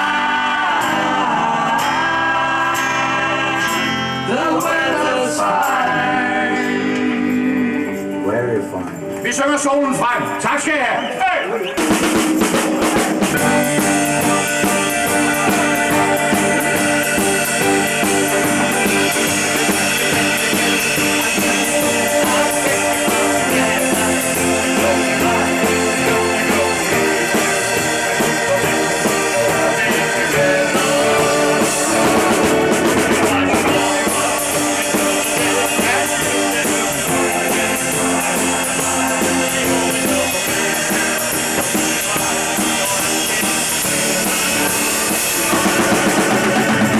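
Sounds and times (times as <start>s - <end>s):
rock band playing: 0.0s - 46.9s.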